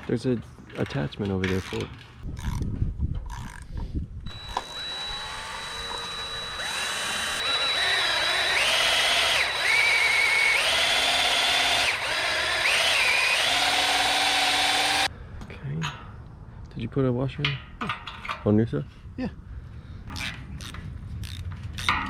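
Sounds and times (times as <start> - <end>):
power drill motor whine: 4.3 - 15.1.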